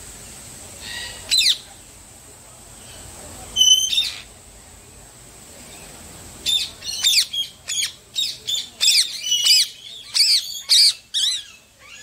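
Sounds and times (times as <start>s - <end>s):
birds calling: 5.7s - 12.0s.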